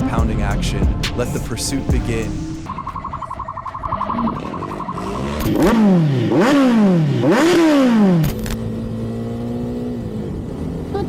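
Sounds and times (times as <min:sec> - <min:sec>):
steady engine drone: 0:01.8 - 0:11.0
motorcycle engine revving: 0:04.2 - 0:11.0.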